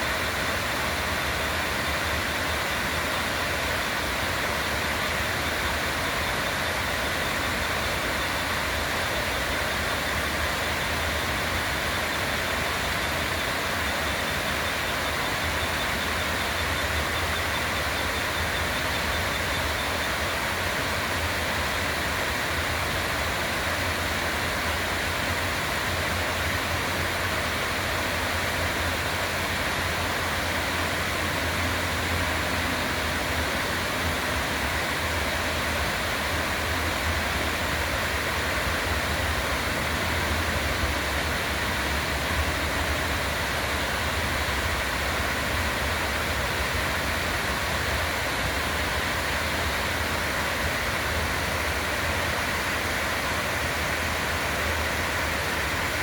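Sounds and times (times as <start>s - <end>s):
river water flowing: 0.0s - 56.0s.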